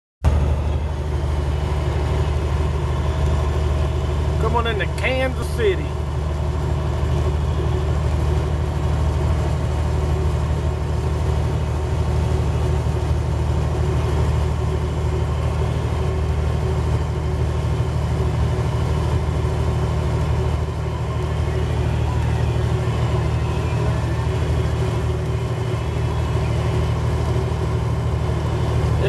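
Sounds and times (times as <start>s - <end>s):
truck diesel engine droning: 0.2s - 29.0s.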